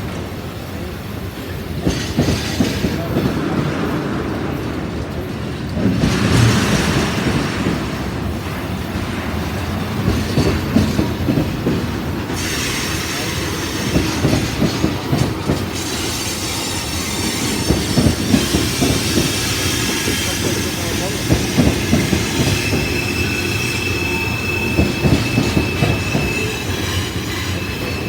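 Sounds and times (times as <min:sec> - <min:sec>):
train wheels clacking over rails: 0:00.0 - 0:28.0
high wheel squeal: 0:12.3 - 0:28.0.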